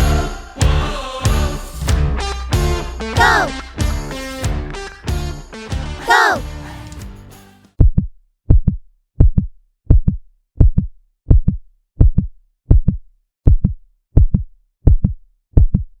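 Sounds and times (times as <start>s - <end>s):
heartbeat thumps: 0.0s - 6.6s, 7.8s - 16.0s.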